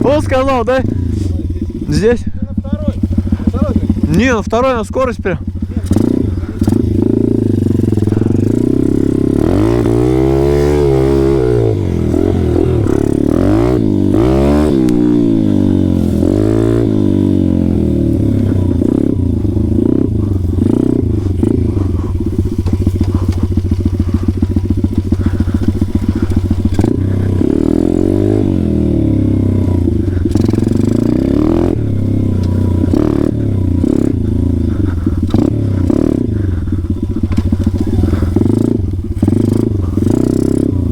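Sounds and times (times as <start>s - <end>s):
bike rattling over rough ground: 0.0s - 40.9s
small motorbike engine revving: 0.0s - 40.9s.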